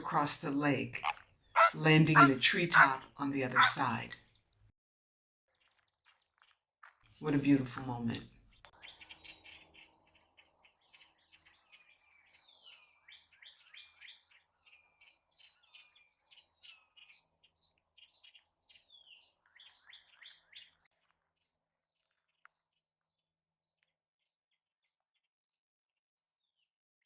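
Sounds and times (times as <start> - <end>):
faint songbirds chirping: 0.0 - 4.0, 7.3 - 20.8.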